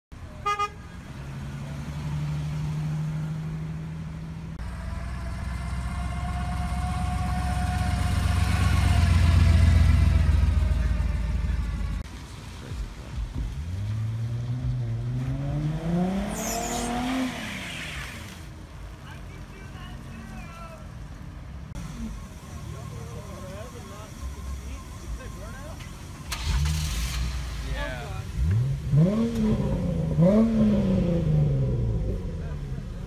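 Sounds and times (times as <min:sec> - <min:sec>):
cars passing close: 0:00.2 - 0:33.0
car accelerating hard: 0:04.6 - 0:12.0, 0:13.5 - 0:18.4, 0:28.3 - 0:33.0.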